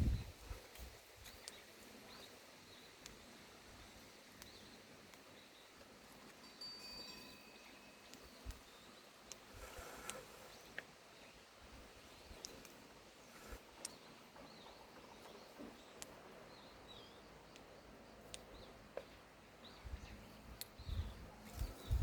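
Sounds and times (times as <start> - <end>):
small birds chirping: 0.0 - 22.0
sharp ticks: 12.3 - 12.8.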